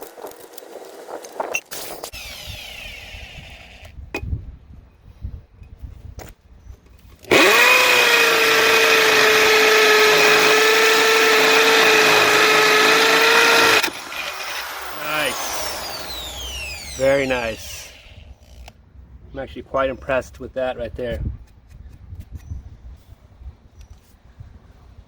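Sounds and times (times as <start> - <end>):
hammer drill drilling into block: 1.7 - 4.0, 7.3 - 18.7.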